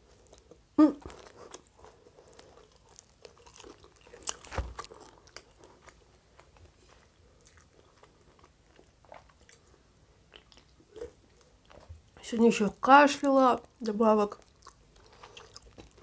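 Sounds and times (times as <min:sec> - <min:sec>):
bread bun crunching: 0:00.0 - 0:09.7, 0:14.4 - 0:16.0
chewing with mouth clicks: 0:00.2 - 0:12.0, 0:14.3 - 0:16.0.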